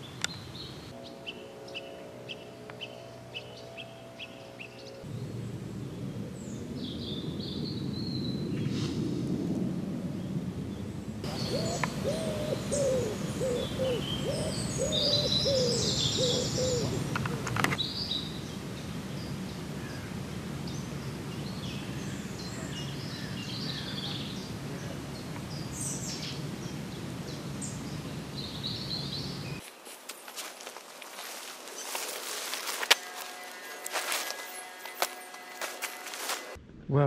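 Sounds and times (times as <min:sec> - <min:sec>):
small birds chirping: 0:00.0 - 0:09.0, 0:10.1 - 0:36.0
bird low hooting calls: 0:10.1 - 0:29.6.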